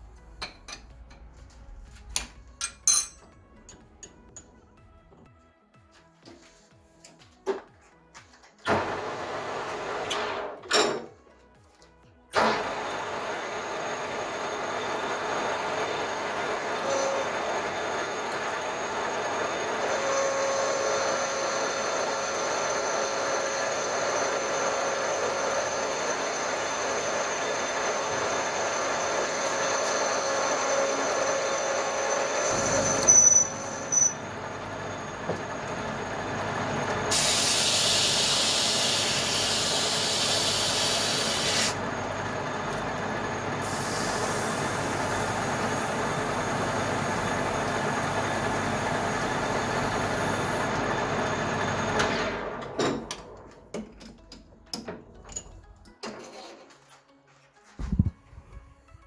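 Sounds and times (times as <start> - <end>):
mechanical hum with high whine: 16.8 - 54.3
hiss: 37.1 - 41.8, 43.6 - 45.4.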